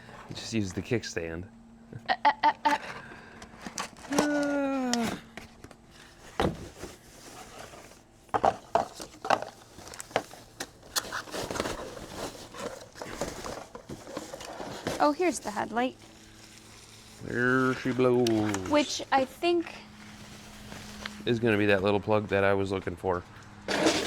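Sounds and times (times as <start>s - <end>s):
packaging rustling: 3.4s - 19.3s.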